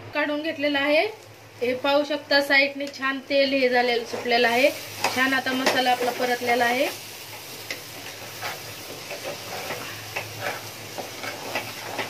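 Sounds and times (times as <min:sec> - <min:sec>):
masala sizzling in oil: 0:00.2 - 0:12.0
utensil scraping pan: 0:07.7 - 0:12.0.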